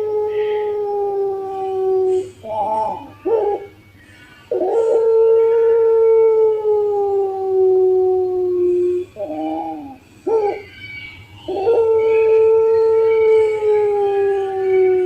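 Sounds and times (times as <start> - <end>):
dove cooing: 1.5 - 3.8, 8.5 - 13.2.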